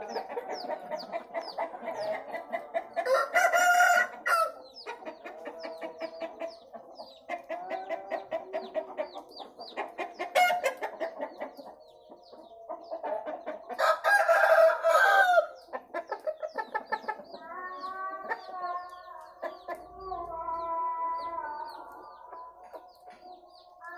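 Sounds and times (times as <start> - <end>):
chickens clucking: 0.0 - 23.9
rooster crowing: 3.0 - 4.6, 13.8 - 15.5.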